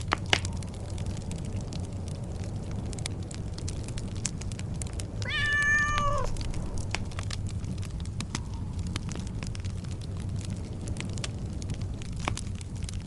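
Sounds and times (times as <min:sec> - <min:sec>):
wood fire crackling: 0:00.0 - 0:13.0
cat meowing: 0:05.2 - 0:06.4.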